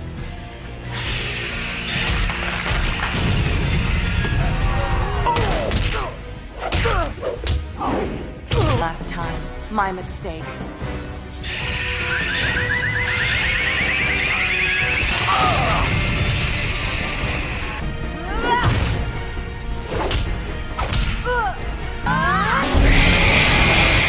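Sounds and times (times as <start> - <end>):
rising shriek: 11.3 - 15.9
cartoon music: 11.3 - 16.0.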